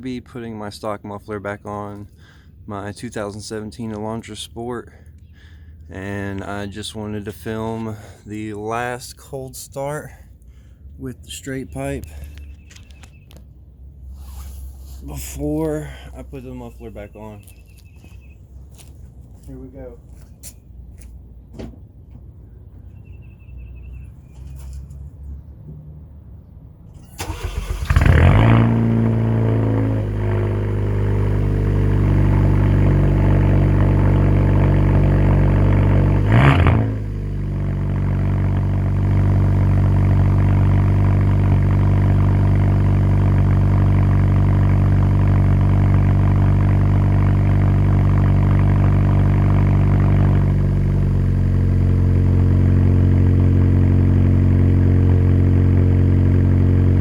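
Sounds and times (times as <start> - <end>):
car engine starting and idling: 26.8 - 57.0
engine rev blip: 27.0 - 52.0.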